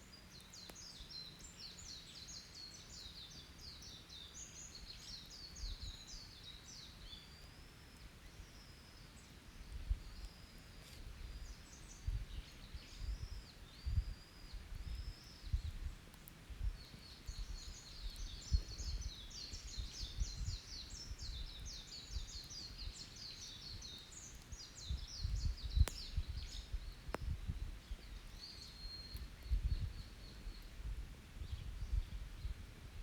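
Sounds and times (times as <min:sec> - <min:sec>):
songbird chirping: 0:00.0 - 0:30.9
campfire popping: 0:14.7 - 0:32.0.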